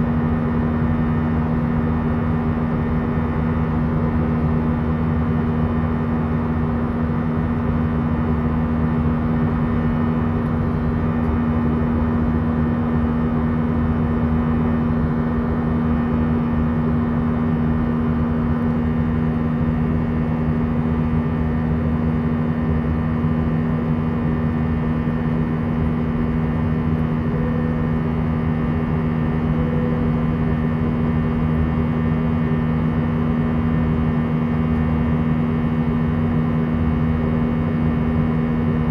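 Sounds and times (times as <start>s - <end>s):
airplane cabin drone: 0.0s - 38.9s.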